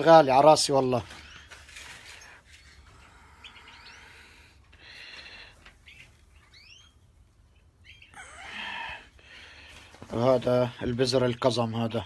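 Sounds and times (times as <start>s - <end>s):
finches chirping: 5.8s - 8.2s.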